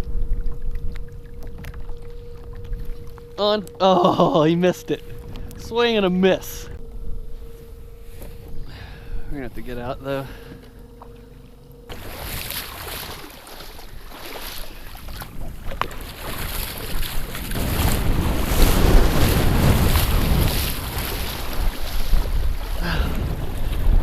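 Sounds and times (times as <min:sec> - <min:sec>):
moving water: 0:00.0 - 0:24.0
wind buffeting microphone: 0:04.4 - 0:10.2, 0:11.9 - 0:24.0.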